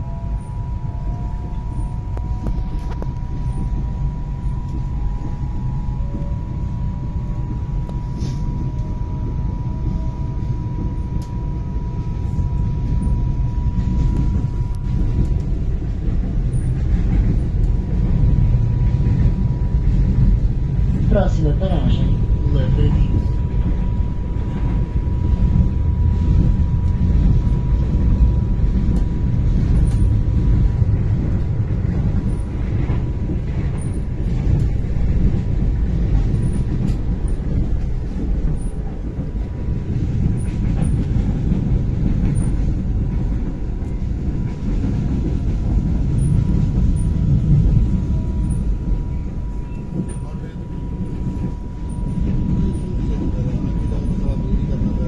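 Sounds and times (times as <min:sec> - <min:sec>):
faint high whine: 0:00.0 - 0:15.8, 0:46.0 - 0:55.0
train wheels rumbling on track: 0:00.0 - 0:55.0.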